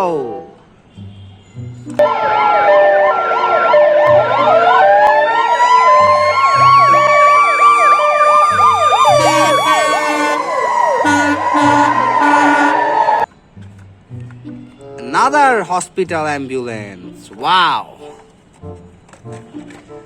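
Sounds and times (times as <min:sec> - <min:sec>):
background music: 0:00.0 - 0:20.0
toy ambulance siren: 0:02.0 - 0:13.3.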